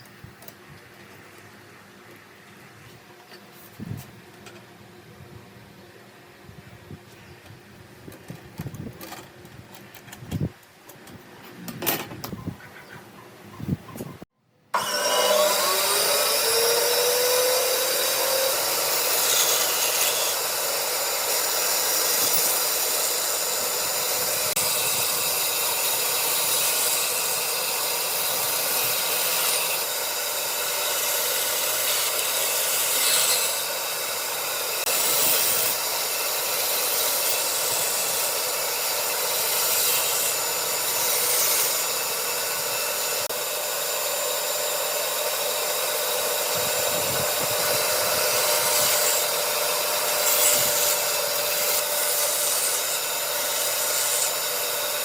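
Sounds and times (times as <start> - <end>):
power tool grinding wood: 14.8 - 55.0.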